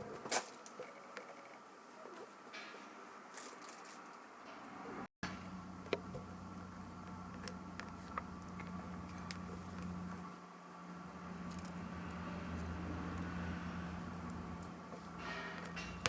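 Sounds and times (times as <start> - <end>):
low electrical hum: 4.2 - 16.0
small parts clicking and tapping: 11.3 - 13.3.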